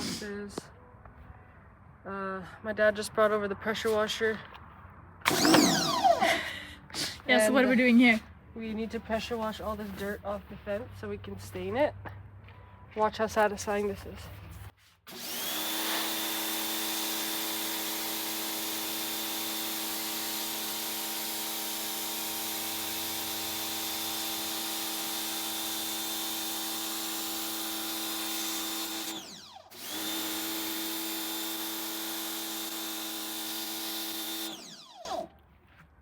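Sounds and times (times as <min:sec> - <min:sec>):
pressure washer motor whining: 0:05.3 - 0:06.4, 0:15.1 - 0:35.3.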